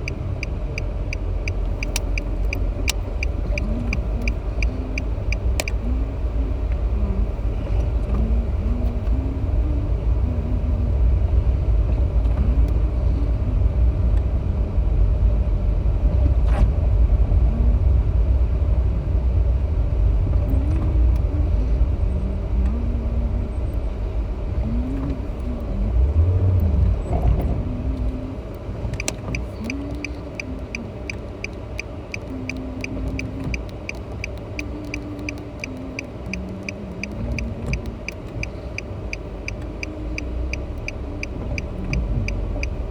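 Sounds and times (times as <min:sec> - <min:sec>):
rhythmic ticking: 0:00.0 - 0:06.6, 0:29.0 - 0:42.9
car road and engine rumble: 0:00.0 - 0:42.9.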